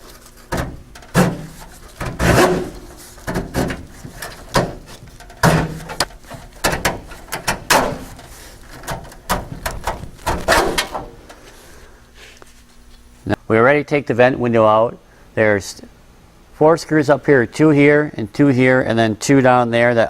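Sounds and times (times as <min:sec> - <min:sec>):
metal channel scraping and rattling: 0:00.0 - 0:11.6.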